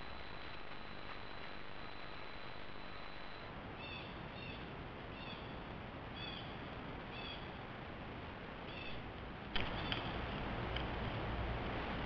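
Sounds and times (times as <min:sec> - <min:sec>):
faint high whine: 0:00.0 - 0:07.6
camera noise hiss: 0:00.0 - 0:12.0.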